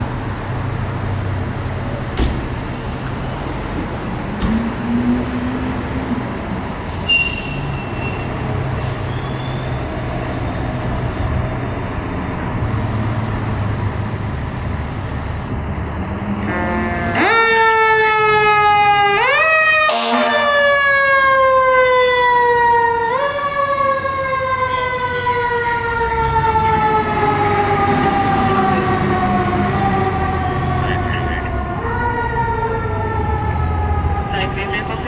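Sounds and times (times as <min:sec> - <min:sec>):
brief high squeal: 0:06.9 - 0:09.7.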